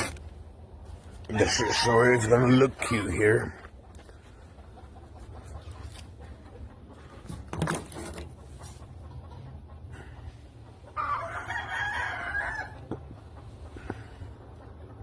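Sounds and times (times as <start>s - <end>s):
rooster crowing: 1.3s - 3.2s, 11.0s - 13.0s.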